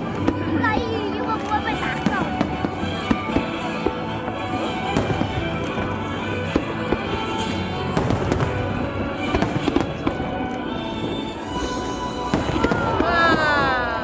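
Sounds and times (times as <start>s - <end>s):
fireworks bursting and crackling: 0.0s - 14.0s
music playing: 0.0s - 14.0s.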